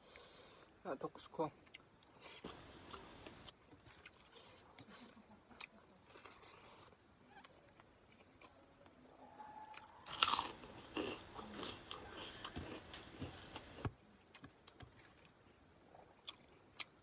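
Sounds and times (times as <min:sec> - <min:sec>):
crunchy chewing: 0:01.6 - 0:17.0
loud crunch of biting food: 0:09.6 - 0:13.8.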